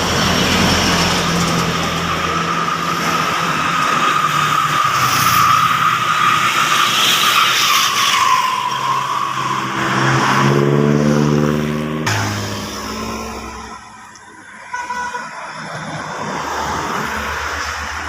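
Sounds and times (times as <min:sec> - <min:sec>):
diesel engine: 0:00.0 - 0:18.0
truck brakes squealing: 0:00.1 - 0:10.9.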